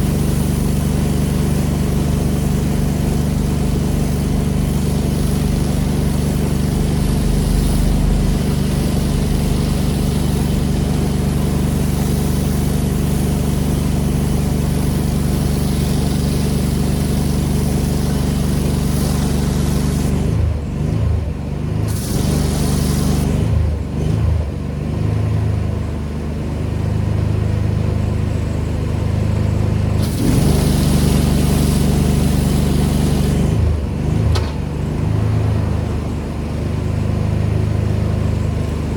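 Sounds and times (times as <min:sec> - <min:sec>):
high-pressure water spray hissing: 0:00.0 - 0:21.0, 0:21.7 - 0:24.2, 0:30.0 - 0:35.6
pressure washer engine running: 0:00.0 - 0:38.9.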